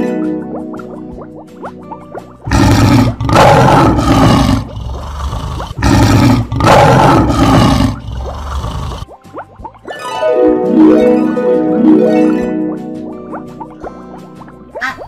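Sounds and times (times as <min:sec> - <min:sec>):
lion roaring: 0:02.5 - 0:09.1.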